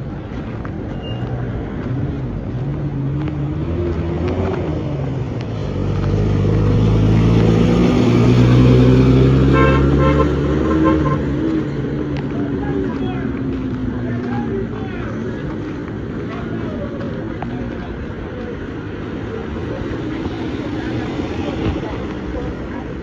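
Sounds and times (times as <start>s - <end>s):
car horn toots: 9.4s - 11.4s.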